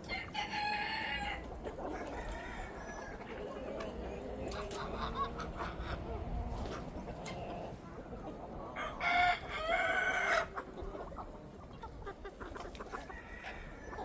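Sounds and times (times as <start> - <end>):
chickens clucking: 0.0 - 14.0
rooster crowing: 0.1 - 1.4, 8.8 - 10.5, 13.1 - 14.0.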